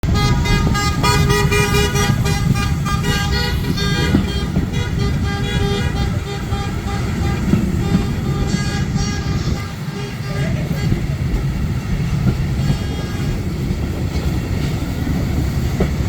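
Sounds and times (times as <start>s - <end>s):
train whistle: 0.1s - 11.0s.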